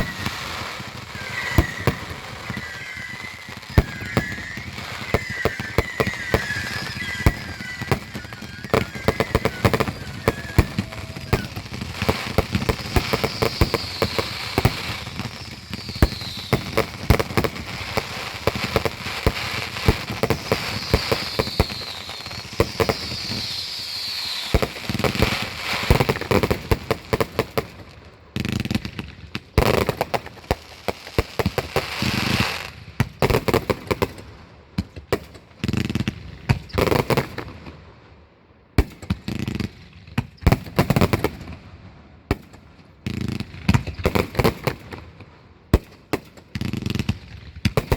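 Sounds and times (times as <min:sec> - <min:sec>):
falling whistles: 0:00.0 - 0:17.0, 0:19.8 - 0:25.9
fireworks bangs and crackles: 0:00.0 - 0:47.9.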